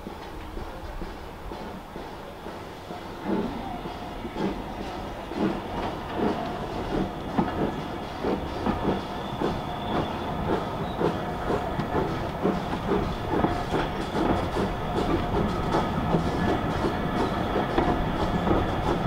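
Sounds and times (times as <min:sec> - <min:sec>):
train wheels clicking over rail joints: 0:00.0 - 0:19.0.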